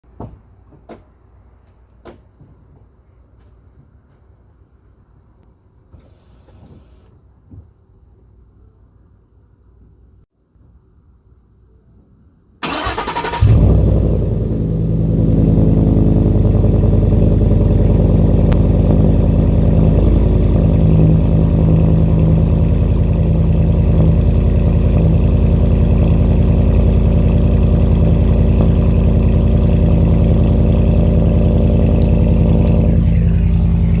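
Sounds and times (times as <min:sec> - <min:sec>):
starter motor cranking: 0:12.6 - 0:13.7
loud car engine idling: 0:12.6 - 0:34.0.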